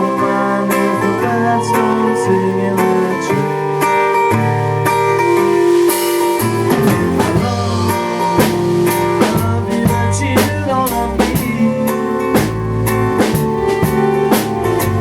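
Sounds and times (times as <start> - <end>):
band playing a song: 0.0 - 15.0
drum hits: 5.3 - 15.0.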